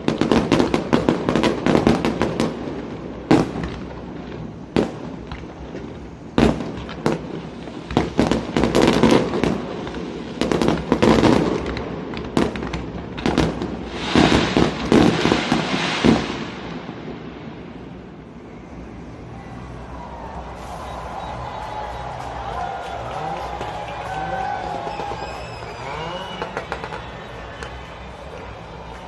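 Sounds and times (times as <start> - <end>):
fireworks bangs: 0.0 - 29.0
fireworks crackling: 0.0 - 29.0.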